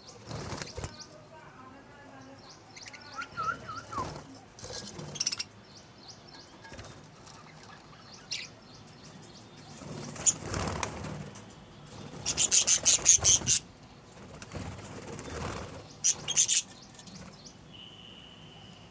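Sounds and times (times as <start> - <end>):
birds chirping: 0.0 - 18.9
wings flapping: 0.1 - 1.2, 3.2 - 5.4, 9.6 - 17.4.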